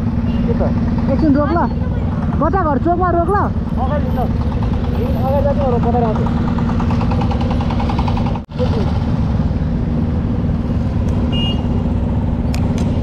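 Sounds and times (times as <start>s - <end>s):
motorcycle engine idling: 0.0s - 9.6s
vehicle beep: 11.3s - 11.8s.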